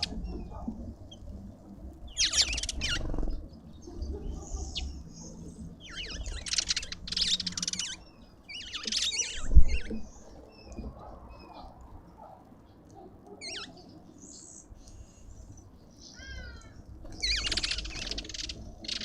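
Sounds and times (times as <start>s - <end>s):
birds giving rasping calls: 2.1s - 3.4s, 13.4s - 13.9s, 16.1s - 19.0s.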